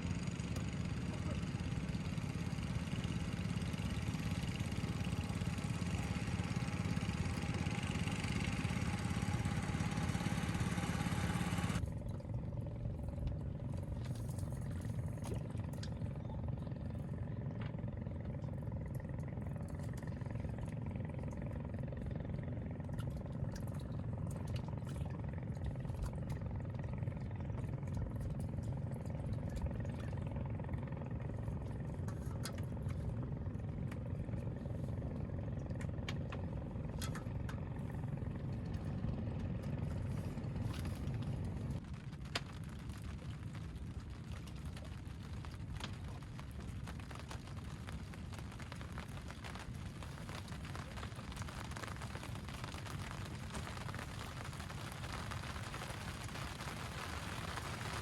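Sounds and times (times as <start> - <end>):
small engine running: 0.0 - 11.9
low rumble: 0.0 - 58.0.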